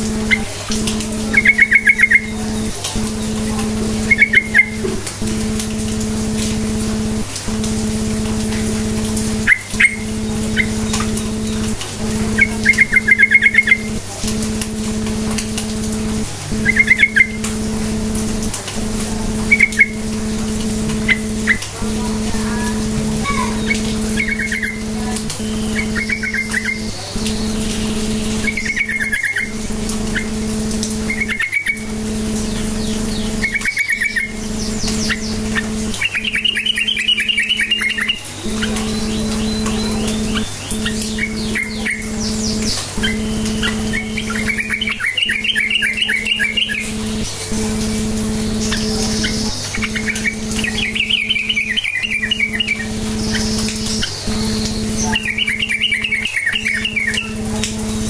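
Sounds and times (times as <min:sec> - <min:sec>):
low hum: 0:00.0 - 0:58.0
bird chattering chirps: 0:01.2 - 0:04.9, 0:09.4 - 0:13.9, 0:16.6 - 0:17.4, 0:19.4 - 0:20.1, 0:20.9 - 0:47.2, 0:47.9 - 0:57.4.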